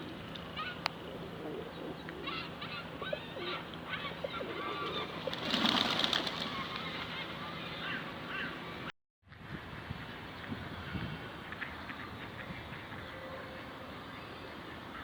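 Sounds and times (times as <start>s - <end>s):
birds noisy flurry: 0.0s - 8.9s
ducks calling: 1.4s - 8.9s.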